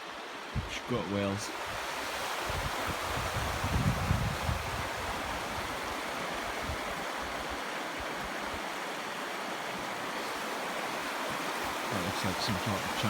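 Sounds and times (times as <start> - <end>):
river water rushing: 0.0 - 13.0
wind rumble on microphone: 0.5 - 0.9, 1.6 - 8.6.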